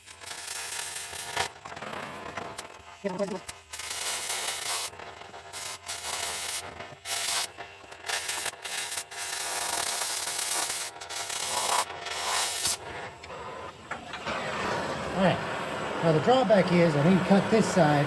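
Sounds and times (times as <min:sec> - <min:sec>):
cutting torch hissing: 0:00.0 - 0:18.0.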